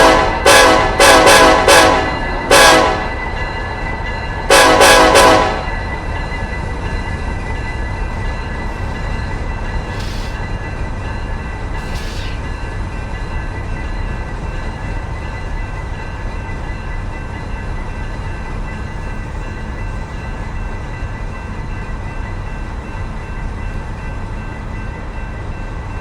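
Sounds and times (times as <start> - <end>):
locomotive air horn blasts: 0.0 - 3.1, 4.5 - 5.6
train rumbling past: 0.0 - 26.0.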